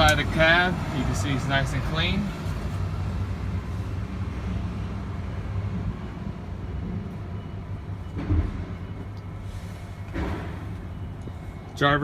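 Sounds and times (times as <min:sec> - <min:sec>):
large engine idling: 0:00.0 - 0:12.0
thump: 0:10.1 - 0:10.6.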